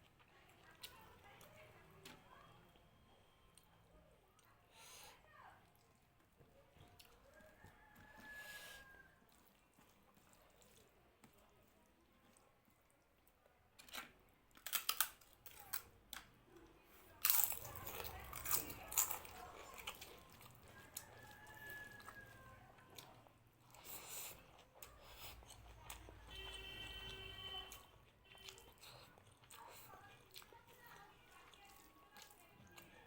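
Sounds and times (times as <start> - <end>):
chewing: 0.0 - 2.2, 3.5 - 33.0
crunching food: 12.2 - 33.0.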